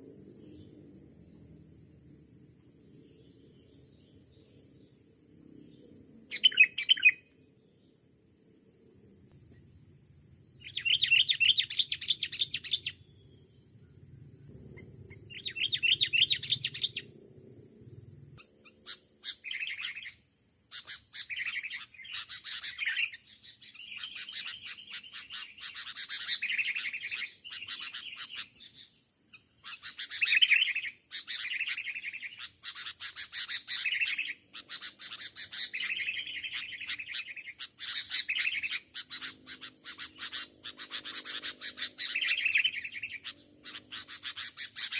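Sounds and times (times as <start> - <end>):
birds chattering calls: 6.3 - 7.4, 10.6 - 13.4, 14.7 - 17.1, 18.4 - 28.9, 29.6 - 44.9.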